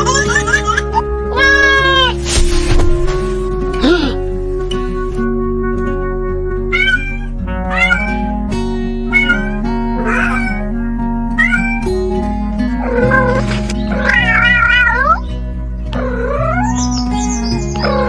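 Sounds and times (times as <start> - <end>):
background music with held notes: 0.0 - 18.0
cat meowing: 1.3 - 2.2, 6.7 - 8.3, 9.1 - 10.7, 11.4 - 11.9, 12.8 - 15.2, 15.9 - 16.8.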